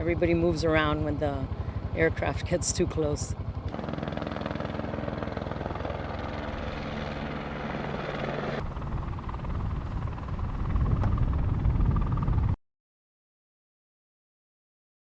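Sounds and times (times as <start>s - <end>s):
helicopter rotor and engine: 0.0s - 12.6s.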